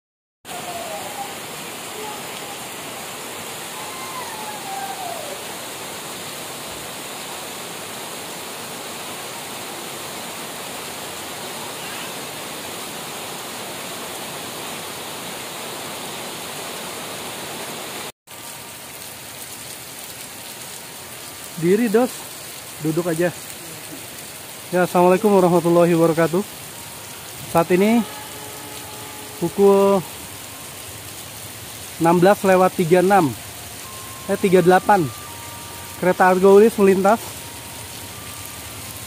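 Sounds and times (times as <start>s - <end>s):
heavy rain hissing: 0.5s - 39.0s.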